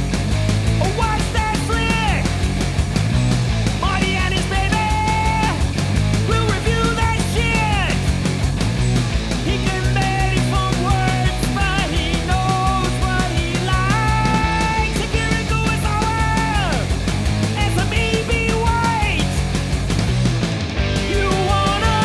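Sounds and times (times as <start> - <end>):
fast drum beat: 0.0 - 22.0
punk rock song: 0.0 - 22.0.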